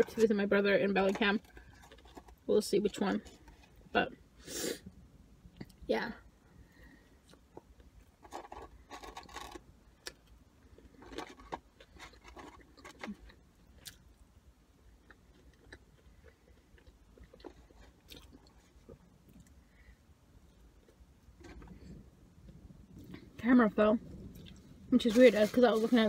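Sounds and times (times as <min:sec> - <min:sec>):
person chewing food: 0:07.1 - 0:14.2, 0:14.8 - 0:23.2.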